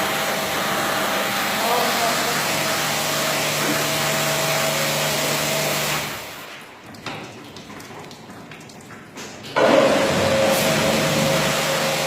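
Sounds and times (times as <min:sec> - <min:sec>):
carpet-washing machine humming: 0:00.0 - 0:08.2, 0:09.1 - 0:12.0.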